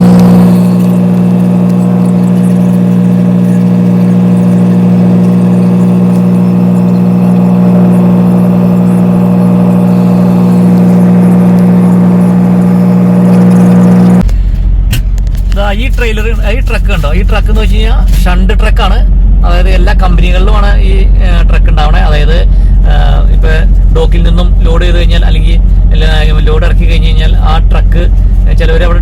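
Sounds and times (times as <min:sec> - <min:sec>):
truck engine idling: 0:14.2 - 0:29.0.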